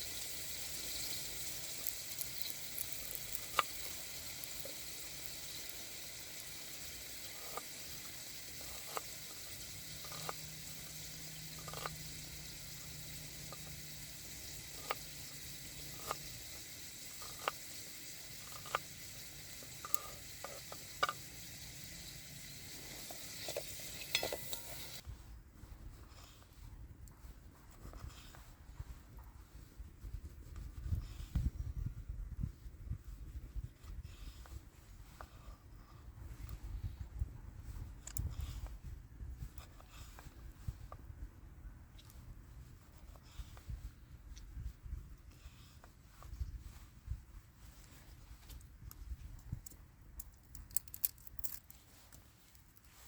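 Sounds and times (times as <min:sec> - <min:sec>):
food sizzling in a frying pan: 0:00.0 - 0:25.0.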